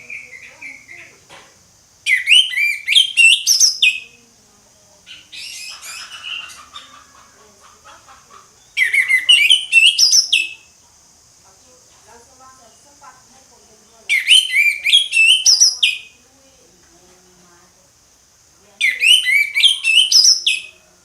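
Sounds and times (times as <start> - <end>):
thrush singing whistled notes: 0.0 - 1.1, 2.0 - 4.2, 5.1 - 6.8, 8.6 - 10.7, 13.9 - 16.2, 18.8 - 20.8
bird twittering: 0.0 - 1.2, 2.0 - 4.2, 5.0 - 10.8, 13.8 - 16.2, 18.8 - 20.8
steady high hiss: 0.0 - 21.0.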